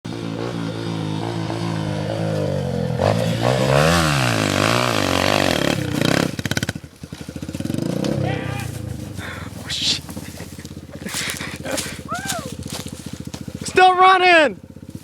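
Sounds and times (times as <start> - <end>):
dirt bike engine revving: 0.1 - 15.0.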